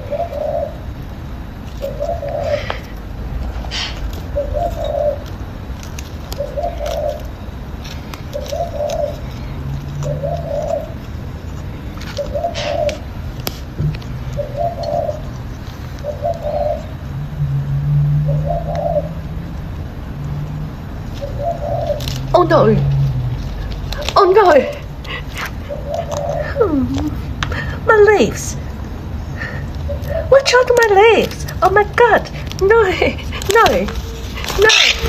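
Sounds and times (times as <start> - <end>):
bird cooing: 0.0 - 0.8, 1.8 - 3.0, 3.6 - 5.3, 6.3 - 7.4, 8.3 - 11.0, 12.1 - 13.1, 14.3 - 15.4, 16.0 - 19.3, 21.2 - 27.8, 32.4 - 35.0.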